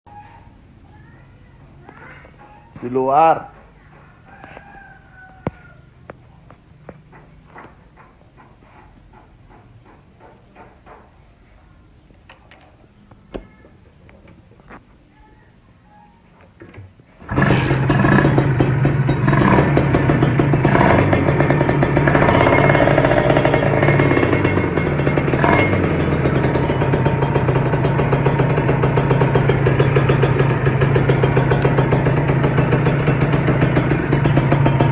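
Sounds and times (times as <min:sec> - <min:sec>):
motorcycle engine revving and idling: 0:17.2 - 0:34.9.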